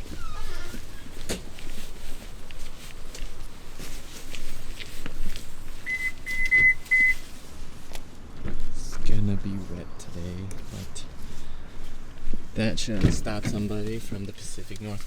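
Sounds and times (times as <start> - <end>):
high electronic beeps: 5.9 - 7.2.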